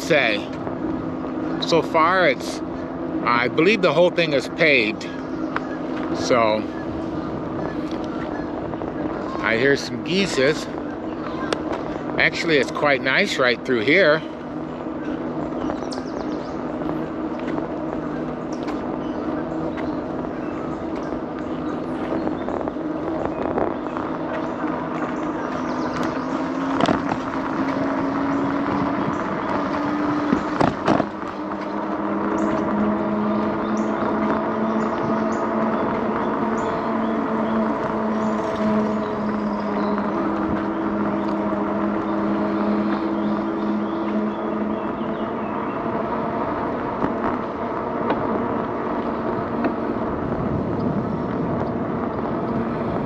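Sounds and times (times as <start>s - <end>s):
electric bike motor whine: 0.0s - 53.0s
tyre and wind noise: 13.9s - 53.0s.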